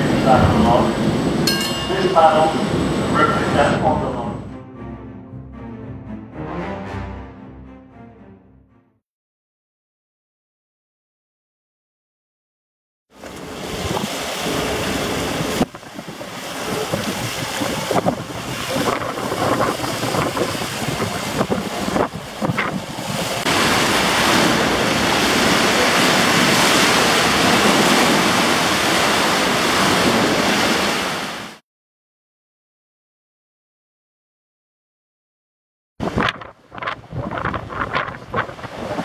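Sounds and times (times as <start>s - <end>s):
wind rushing over microphone: 13.2s - 31.4s, 36.0s - 39.0s
water sloshing and splashing: 13.2s - 31.6s, 36.1s - 39.0s.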